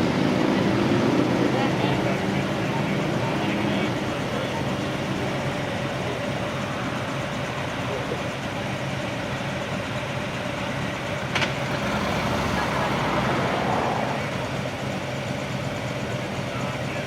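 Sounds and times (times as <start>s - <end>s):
street noise: 0.0s - 17.0s
vehicle engine idling: 0.0s - 17.0s.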